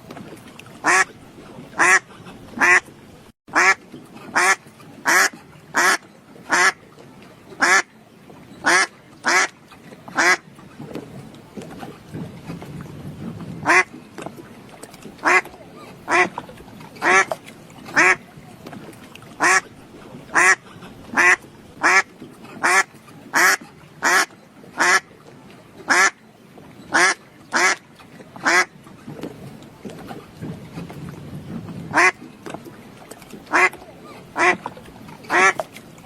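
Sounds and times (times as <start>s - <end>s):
duck quacking: 1.8s - 2.0s, 2.6s - 2.8s, 3.5s - 3.8s, 4.4s - 6.8s, 7.6s - 7.8s, 8.6s - 9.5s, 10.2s - 10.4s, 13.6s - 13.9s, 15.2s - 15.5s, 16.1s - 16.3s, 18.0s - 18.2s, 20.4s - 20.6s, 21.2s - 22.0s, 22.6s - 22.8s, 23.4s - 25.0s, 26.9s - 27.8s, 28.4s - 28.7s, 31.9s - 32.2s, 33.5s - 33.8s, 34.4s - 34.6s, 35.3s - 35.6s.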